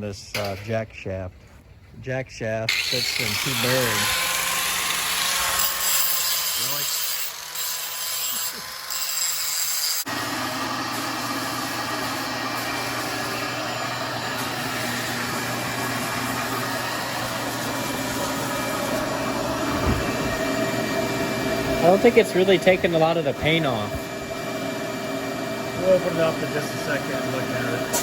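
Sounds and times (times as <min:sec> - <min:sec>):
motorised machine running: 0:10.0 - 0:28.0.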